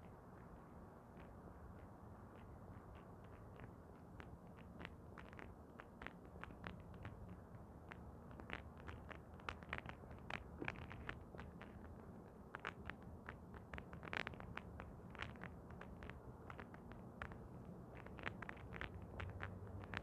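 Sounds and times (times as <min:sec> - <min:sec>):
faint irregular clicks and taps: 0:00.0 - 0:20.0.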